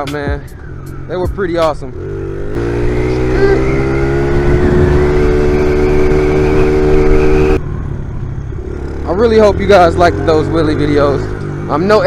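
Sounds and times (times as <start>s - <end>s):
small motorcycle engine running: 2.0s - 7.6s.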